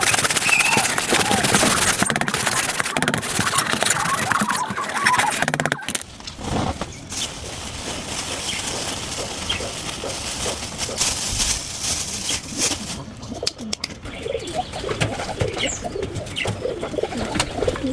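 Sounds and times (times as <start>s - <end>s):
pigeons cooing: 0.0s - 6.0s, 8.4s - 17.9s
scattered clicks: 0.0s - 6.1s
wings flapping: 0.0s - 17.9s.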